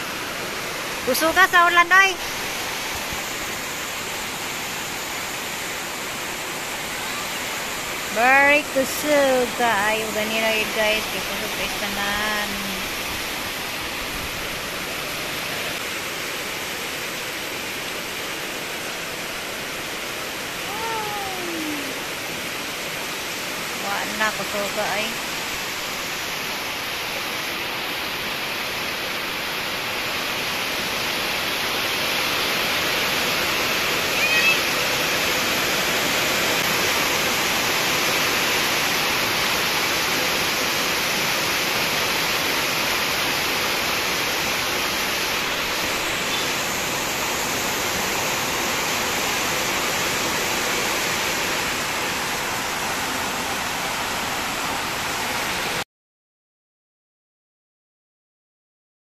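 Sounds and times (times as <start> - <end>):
heavy rain on metal roofs: 0.0 - 55.8
short high-pitched cry: 20.7 - 22.0, 34.2 - 34.7.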